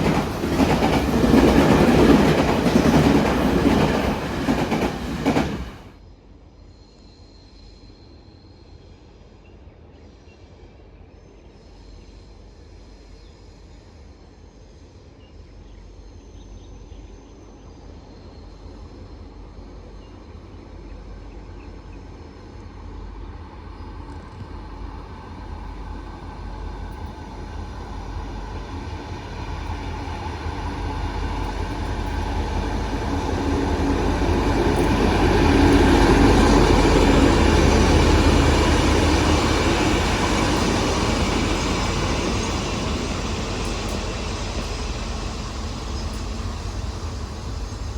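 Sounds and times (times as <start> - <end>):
train passing: 0.0 - 6.0, 18.5 - 47.9.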